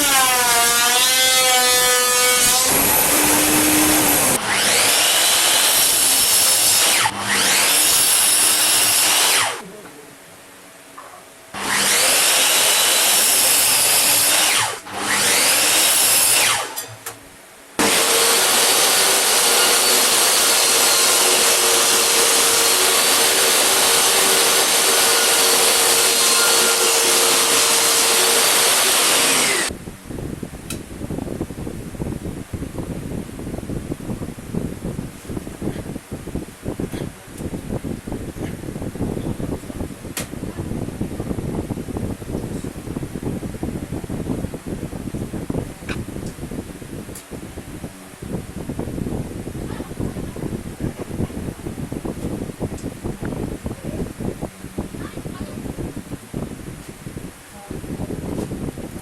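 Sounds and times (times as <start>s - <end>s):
power tool whining through wood: 0.0s - 9.6s, 11.6s - 17.0s, 17.8s - 29.7s.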